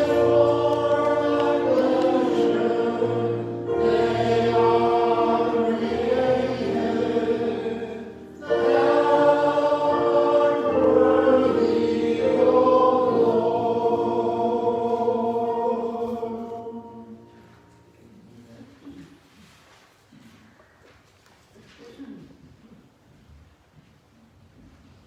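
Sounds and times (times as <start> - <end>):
choir singing a hymn: 0.0 - 18.5.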